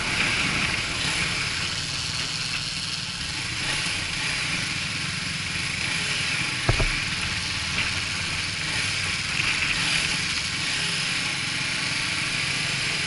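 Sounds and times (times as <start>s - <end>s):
motorcycle engine running: 0.0s - 13.0s
short knock: 6.7s - 7.1s.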